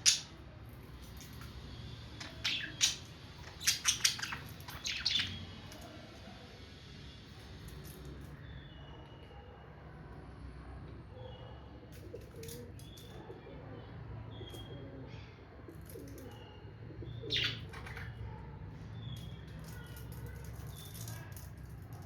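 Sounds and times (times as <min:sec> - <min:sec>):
budgerigars chirping: 0:02.2 - 0:05.4, 0:17.2 - 0:17.9.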